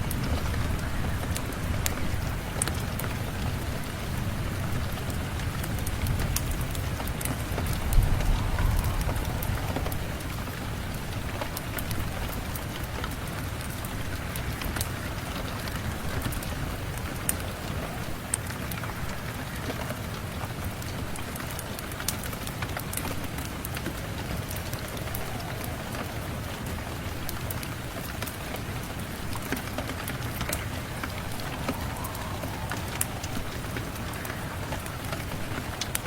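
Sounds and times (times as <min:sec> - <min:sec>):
fire crackles: 0:00.0 - 0:36.0
steady rain: 0:00.0 - 0:36.0
low rumble: 0:06.8 - 0:12.7, 0:30.5 - 0:35.8.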